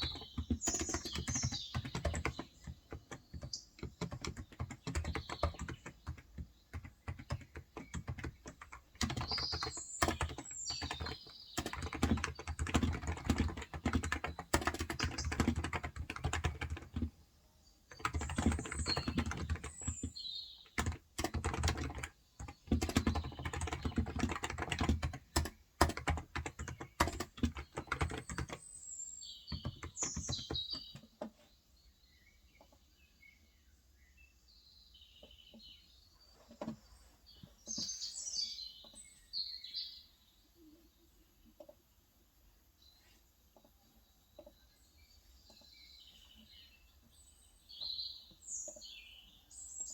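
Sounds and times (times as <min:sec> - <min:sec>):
fast typing on keyboard: 0:00.0 - 0:17.2, 0:17.9 - 0:28.7, 0:29.5 - 0:31.1
birds chirping: 0:00.0 - 0:41.8.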